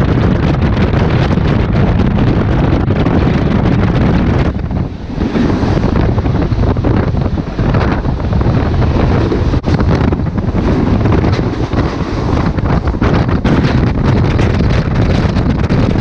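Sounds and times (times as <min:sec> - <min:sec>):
passing train: 0:00.0 - 0:16.0
train rumbling and clattering: 0:00.0 - 0:16.0
wind buffeting microphone: 0:00.0 - 0:16.0.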